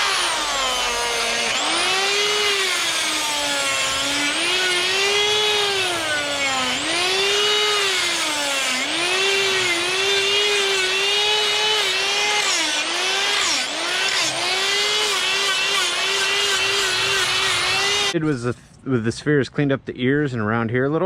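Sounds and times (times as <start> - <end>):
die grinder whining: 0.0 - 18.2.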